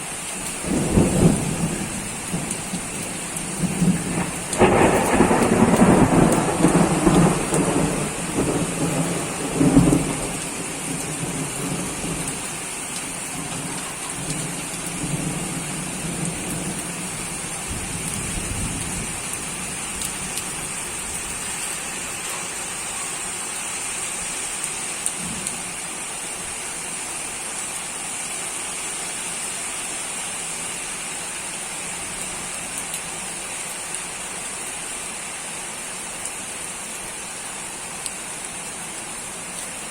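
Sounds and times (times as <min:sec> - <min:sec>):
steady rain: 0:00.0 - 0:39.9
thunder rolling: 0:00.6 - 0:12.6.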